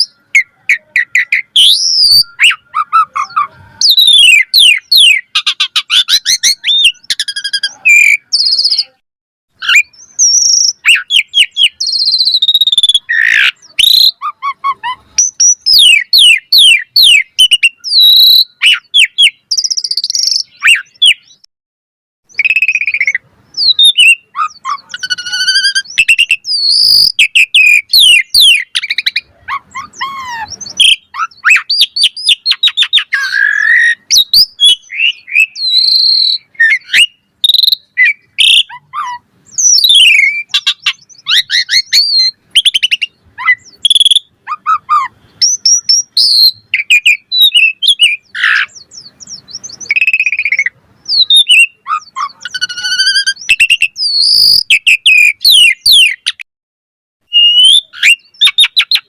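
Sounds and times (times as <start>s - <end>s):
starling singing varied song: 0.0s - 9.0s, 9.6s - 21.5s, 22.3s - 56.4s.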